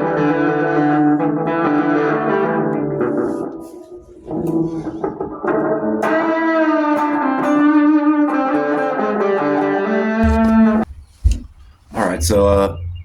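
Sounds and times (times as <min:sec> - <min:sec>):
electric guitar: 0:00.0 - 0:10.9
single thump: 0:10.2 - 0:11.8.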